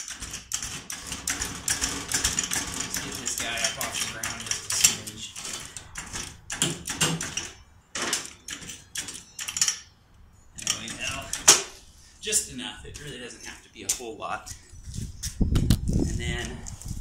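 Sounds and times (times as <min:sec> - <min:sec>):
jack clicking and rattling: 0:00.0 - 0:09.9, 0:10.6 - 0:11.8.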